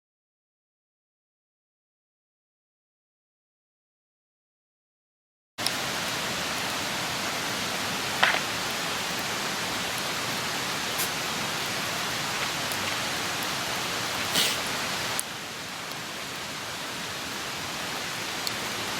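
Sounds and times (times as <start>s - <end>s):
fire crackles and pops: 5.6s - 18.8s
campfire hissing: 5.6s - 18.9s.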